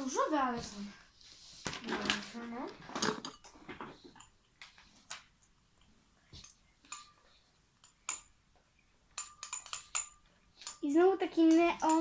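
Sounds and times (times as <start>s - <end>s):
small containers clicking and tapping: 7.8s - 8.4s, 9.1s - 12.0s
utensil clinking: 9.1s - 12.0s.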